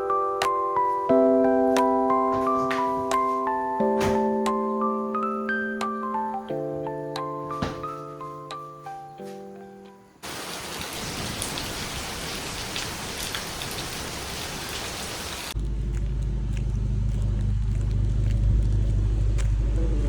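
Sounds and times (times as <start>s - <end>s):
soft keyboard music: 0.0s - 10.2s
rain falling: 10.2s - 15.6s
vehicle engine hum: 15.5s - 20.0s.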